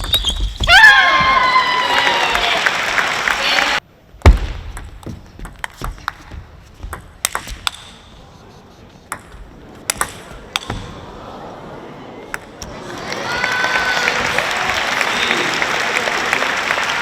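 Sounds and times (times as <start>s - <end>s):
quiet arena background: 0.0s - 17.0s
table tennis ball hits: 4.2s - 8.1s, 9.1s - 11.0s.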